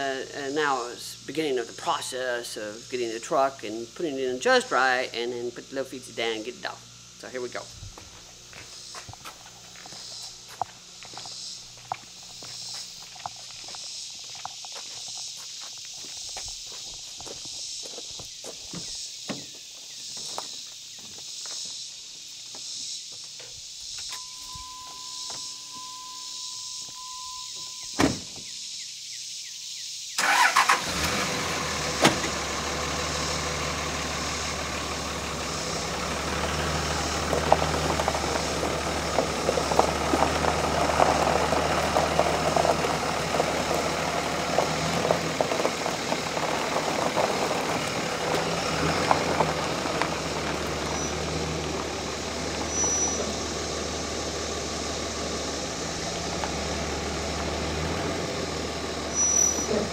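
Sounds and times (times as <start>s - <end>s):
truck engine cranking and idling: 23.2s - 28.6s, 30.2s - 59.9s.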